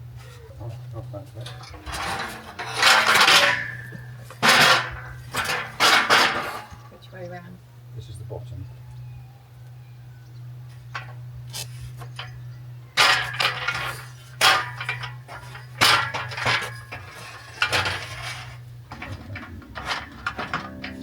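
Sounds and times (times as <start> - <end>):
low steady hum: 0.0 - 21.0
metal poles clanking: 0.6 - 7.0, 10.9 - 11.2, 13.0 - 21.0.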